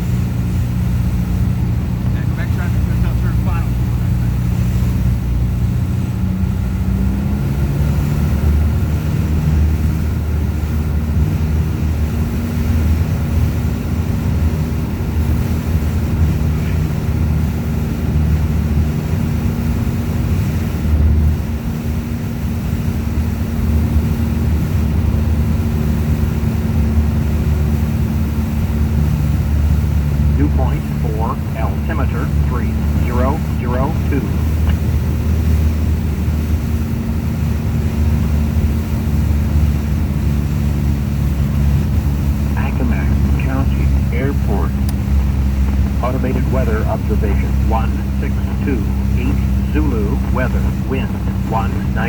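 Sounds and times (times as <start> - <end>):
engine humming: 23.6 - 52.0.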